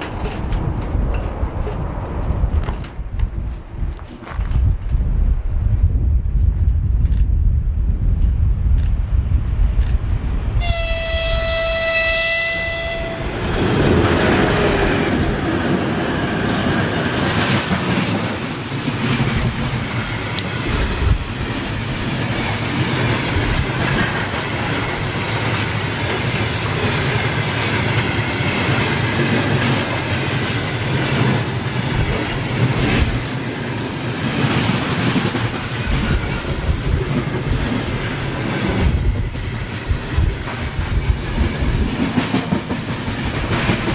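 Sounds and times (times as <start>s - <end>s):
train rumbling past: 0.0s - 43.9s
train horn blast: 10.6s - 13.9s.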